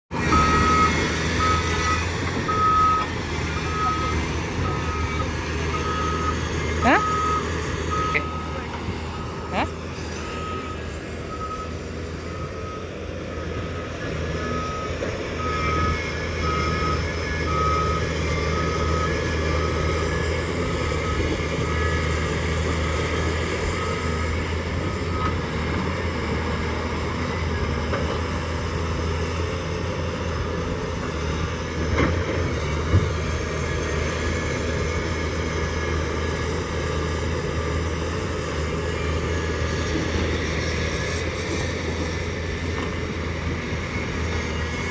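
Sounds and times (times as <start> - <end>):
heavy diesel machinery running: 0.1 - 44.9
reversing alarm beeping: 0.2 - 25.6.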